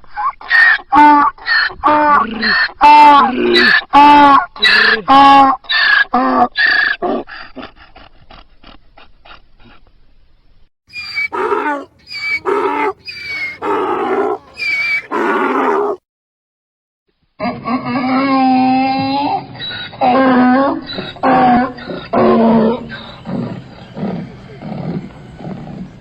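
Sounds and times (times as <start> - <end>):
donkey braying: 10.9 - 16.0, 19.8 - 25.7.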